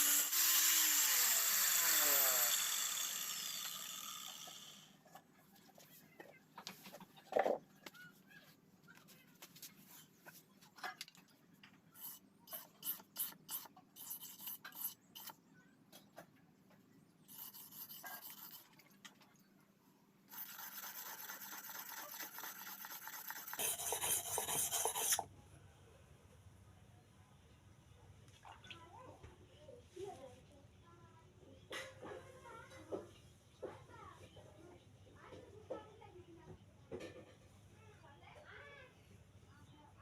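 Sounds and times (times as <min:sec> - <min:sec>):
tool rasping and scraping metal: 0:00.0 - 0:04.9, 0:12.0 - 0:15.4, 0:17.3 - 0:18.7, 0:20.3 - 0:25.3.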